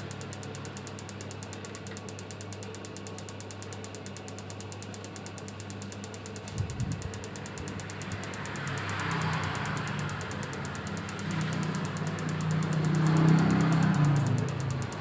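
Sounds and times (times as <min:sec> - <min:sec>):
tumble dryer running: 0:06.4 - 0:09.1.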